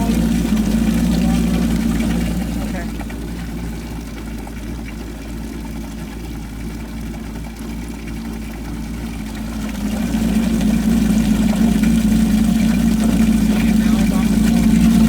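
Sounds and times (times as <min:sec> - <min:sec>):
jet ski engine idling: 0:00.0 - 0:15.0.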